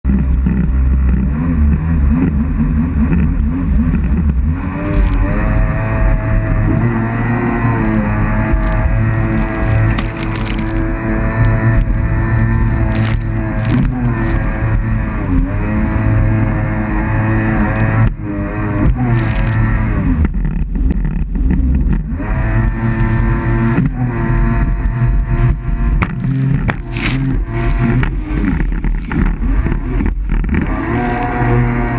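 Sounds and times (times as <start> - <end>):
jet ski engine running: 0.0 - 31.9.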